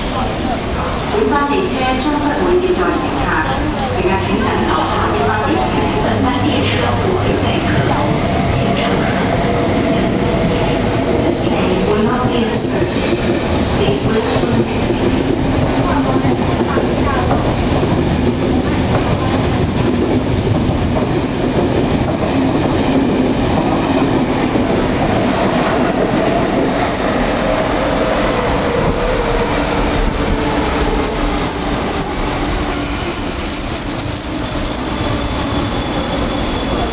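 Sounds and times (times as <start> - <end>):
train wheels rumbling on track: 0.0 - 36.9
metal wheel squeal: 31.1 - 36.9.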